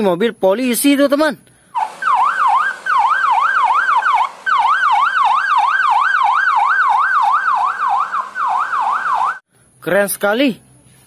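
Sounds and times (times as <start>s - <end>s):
police siren yelping: 1.8s - 9.4s.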